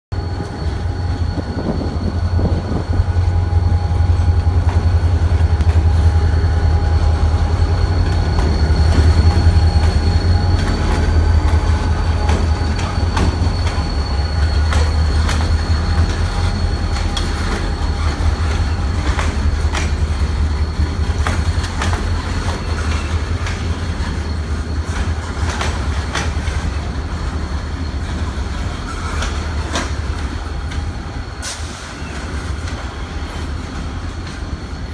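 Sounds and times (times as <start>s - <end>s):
diesel locomotive engine drone: 0.1s - 34.9s
wheel squeal: 0.2s - 34.2s
wheels clicking over rail joints: 8.0s - 31.0s.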